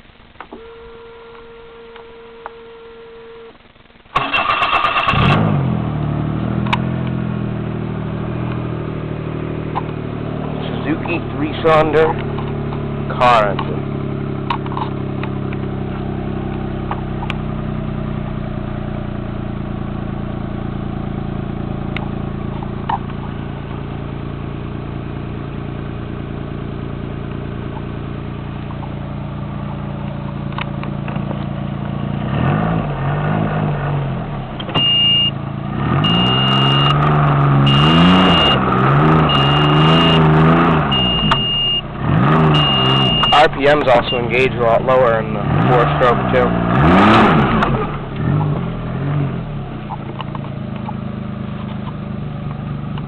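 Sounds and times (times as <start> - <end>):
snowmobile engine idling and revving: 4.9 - 53.0
short high beep: 34.8 - 35.4, 36.0 - 37.0, 37.6 - 38.6, 39.2 - 40.3, 40.9 - 44.2.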